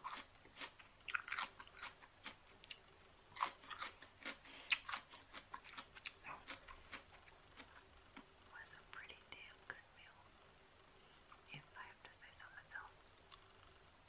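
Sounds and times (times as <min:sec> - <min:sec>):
person chewing food: 0:00.0 - 0:08.3.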